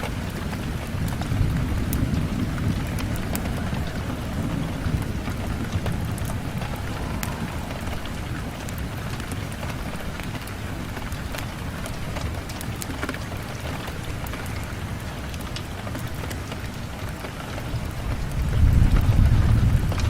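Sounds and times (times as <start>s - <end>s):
rain pattering on window glass: 0.0s - 20.0s
low rumble: 0.7s - 11.2s.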